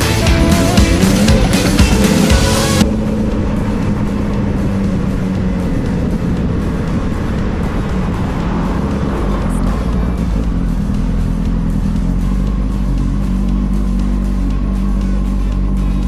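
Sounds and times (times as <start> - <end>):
background music: 0.0 - 16.0
motorcycle engine cruising: 0.0 - 16.0
wind rush on microphone: 2.8 - 14.0.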